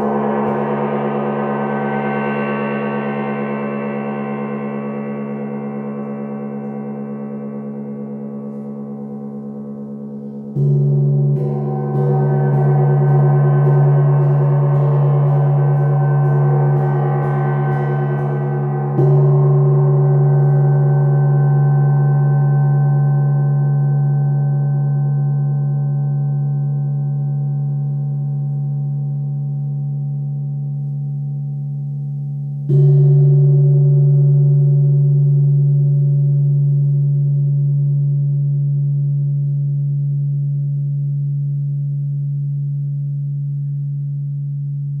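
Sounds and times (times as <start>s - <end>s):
gong ringing: 0.0s - 10.0s, 10.6s - 21.4s
singing bowl ringing: 0.0s - 44.6s.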